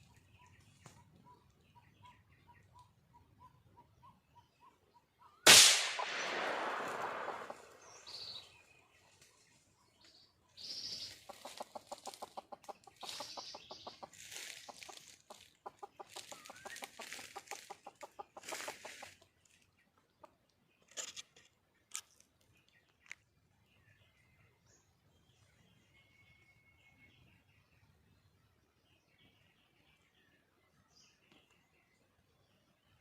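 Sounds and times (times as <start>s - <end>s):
hen rapid clucking: 10.7s - 20.4s.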